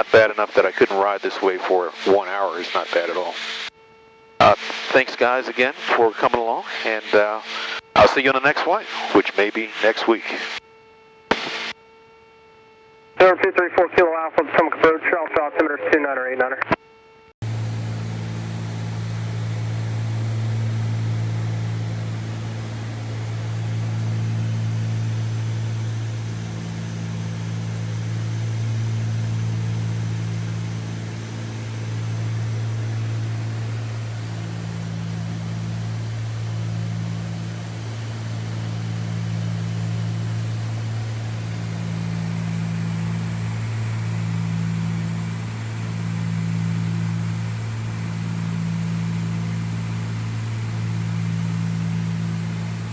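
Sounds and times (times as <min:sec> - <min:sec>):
propeller engines droning: 0:17.4 - 0:52.9.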